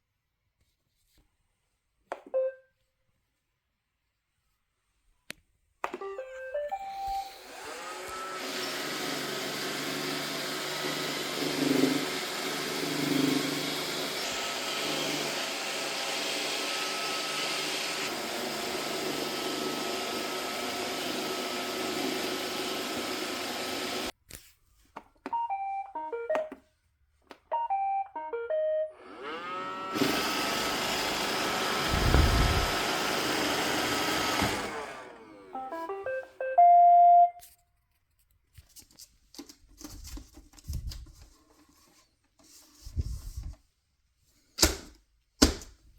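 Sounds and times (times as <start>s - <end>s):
electronic beep tunes: 2.4s - 2.7s, 25.4s - 26.5s, 27.6s - 28.9s, 35.6s - 37.4s
robot vacuum motor and brushes: 6.7s - 24.1s, 29.0s - 35.9s.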